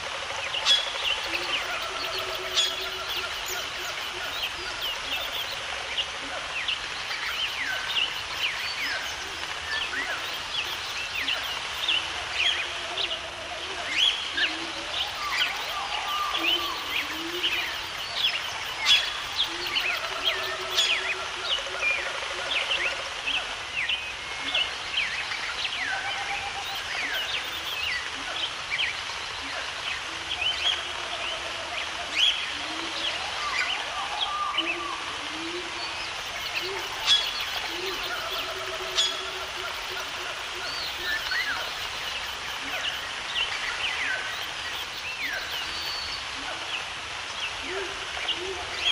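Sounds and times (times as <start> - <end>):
lower rippling bird calls: 0.0 - 28.4, 32.0 - 48.9
steady background hiss: 0.0 - 48.9
birds chirping: 0.4 - 29.4, 35.6 - 47.7.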